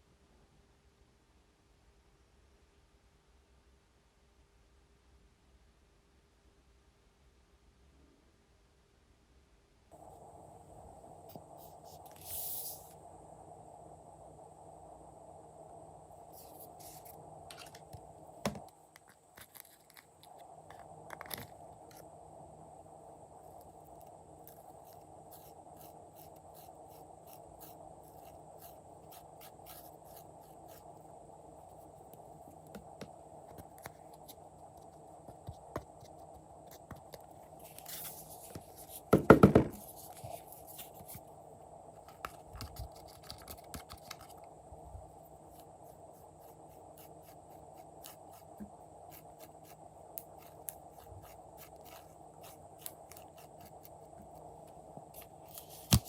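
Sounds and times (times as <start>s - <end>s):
steady low hum: 0.0s - 56.0s
small clicks and scratches: 19.0s - 22.1s, 23.6s - 30.9s, 42.0s - 44.5s, 45.5s - 56.0s.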